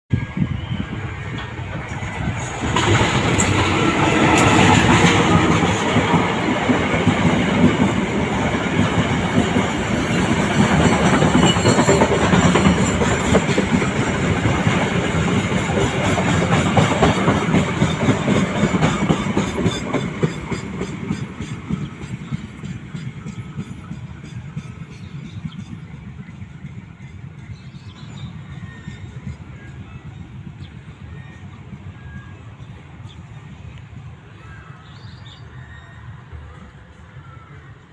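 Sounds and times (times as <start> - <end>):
train passing: 0.1 - 37.9
wheels clacking over rail joints: 1.2 - 25.8.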